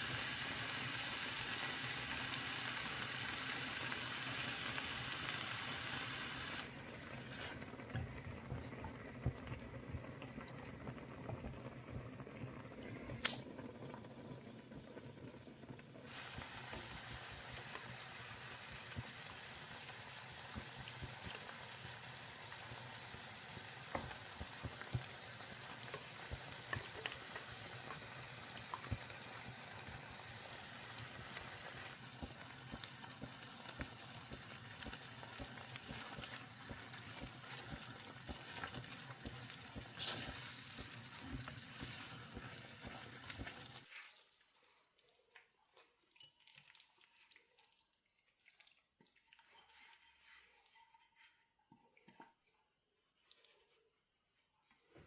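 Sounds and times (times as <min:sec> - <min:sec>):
water running from tap: 0:16.0 - 0:44.4
water dripping: 0:42.6 - 0:49.8.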